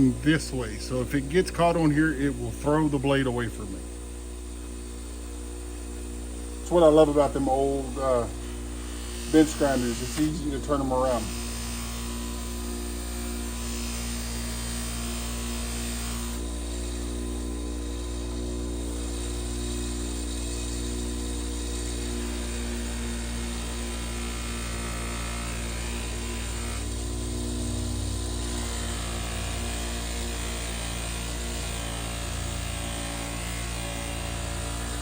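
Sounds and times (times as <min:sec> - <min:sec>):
bench grinder motor hum: 0:00.0 - 0:35.0
knife blade polished on wheel: 0:06.7 - 0:17.1.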